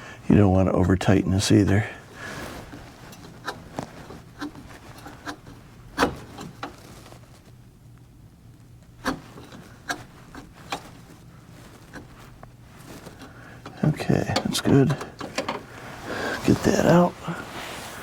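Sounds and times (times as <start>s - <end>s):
low steady hum: 0.0s - 18.0s
oil filter clicking and rubbing: 1.6s - 18.0s.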